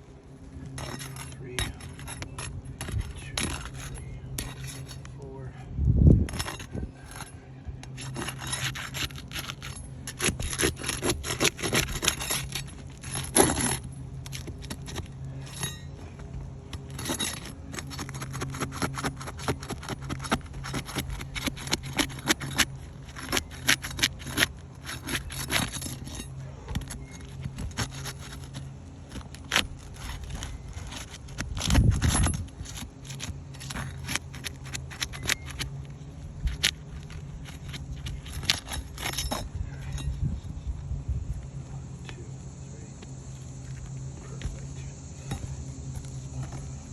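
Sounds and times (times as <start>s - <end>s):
steady low hum: 0.0s - 46.9s
clicks and clinks of small parts: 36.4s - 40.2s.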